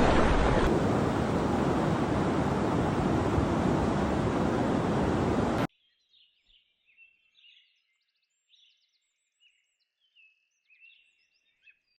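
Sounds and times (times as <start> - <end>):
loud rushing noise: 0.0 - 5.7.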